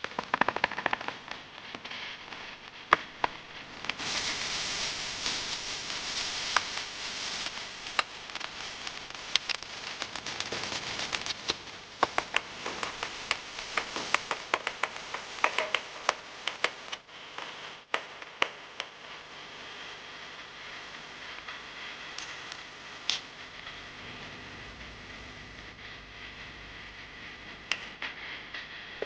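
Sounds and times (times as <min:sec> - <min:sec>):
food sizzling in a pan: 0:01.9 - 0:18.8.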